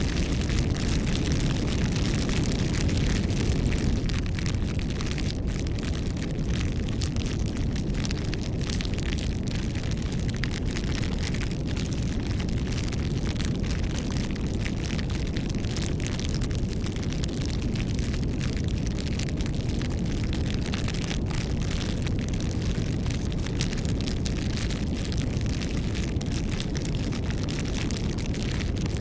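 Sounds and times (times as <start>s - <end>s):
fire crackling and popping: 0.0s - 29.0s
wood fire rumbling: 0.0s - 29.0s.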